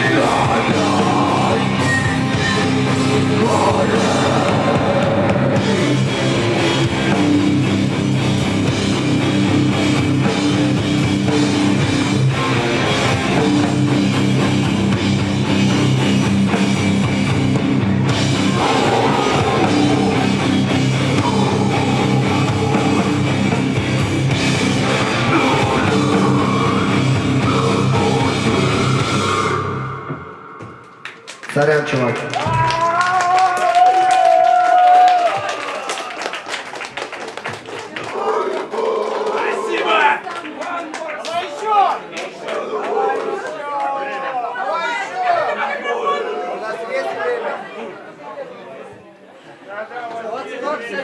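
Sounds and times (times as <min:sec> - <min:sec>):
live rock band playing: 0:00.0 - 0:30.9.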